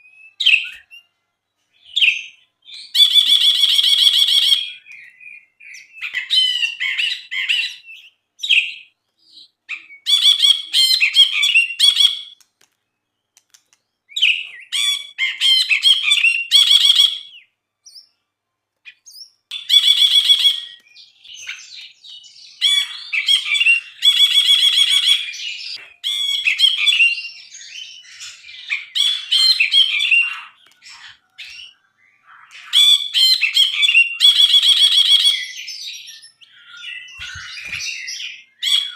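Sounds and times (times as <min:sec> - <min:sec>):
bird chattering and whistling: 0:01.8 - 0:12.4, 0:18.9 - 0:38.9.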